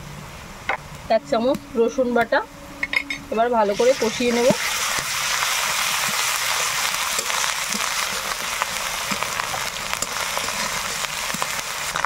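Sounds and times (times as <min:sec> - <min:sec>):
onions sizzling in hot oil: 0:03.4 - 0:12.0.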